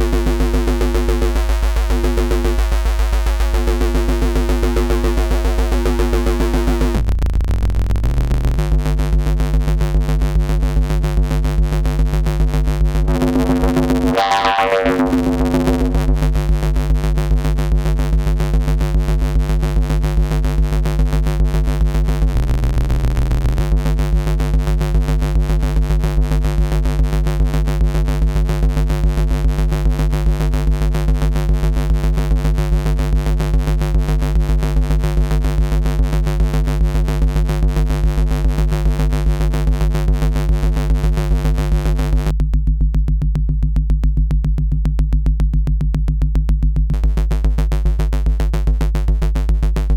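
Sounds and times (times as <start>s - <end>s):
buzzy synth bass note: 0.0s - 8.6s, 12.9s - 16.6s, 22.3s - 23.8s.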